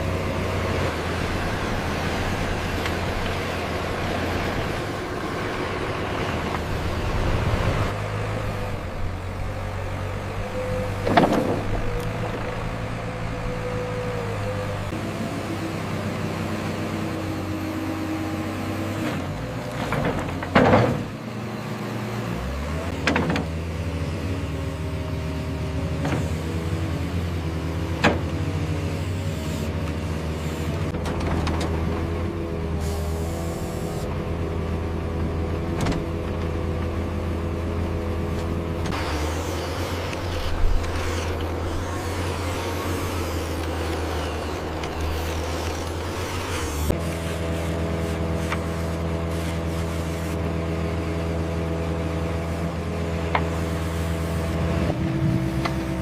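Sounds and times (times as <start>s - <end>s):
construction machinery engine humming: 0.0s - 56.0s
steady motor hum: 38.7s - 56.0s.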